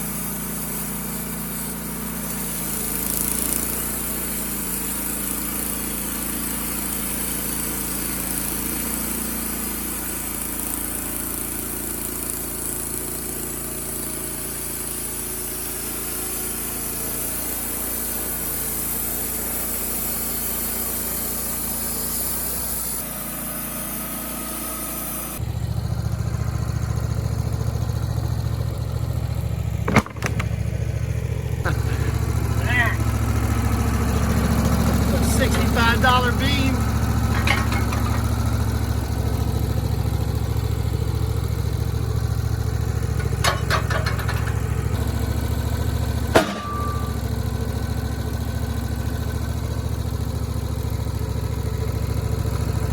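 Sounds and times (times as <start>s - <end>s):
bandsaw mill sawing log: 0.0s - 25.4s, 29.0s - 52.9s
pulsing engine: 0.0s - 52.9s.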